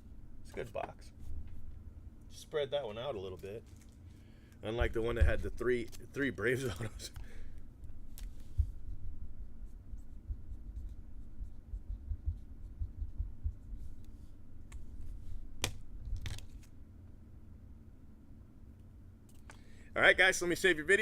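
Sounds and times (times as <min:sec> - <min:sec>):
cards and wrappers handled: 0:03.0 - 0:04.2, 0:14.8 - 0:16.8.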